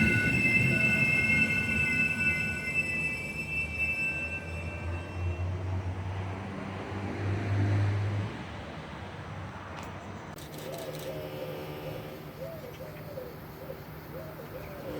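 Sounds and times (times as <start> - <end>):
train wheel squeal: 0.0 - 6.7, 10.4 - 14.9
train low rumble: 0.0 - 7.2, 10.4 - 14.9.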